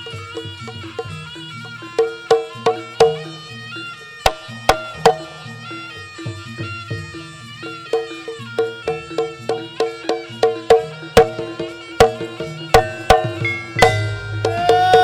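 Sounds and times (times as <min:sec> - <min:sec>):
held reed-pipe note: 0:00.0 - 0:15.0
sharp drum strokes: 0:04.2 - 0:05.5, 0:07.9 - 0:15.0
gong-chime notes: 0:10.5 - 0:15.0.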